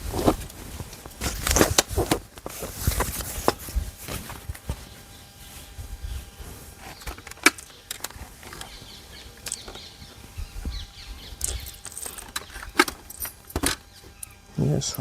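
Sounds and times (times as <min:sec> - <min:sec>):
gear clicks and knocks: 0:10.6 - 0:14.3.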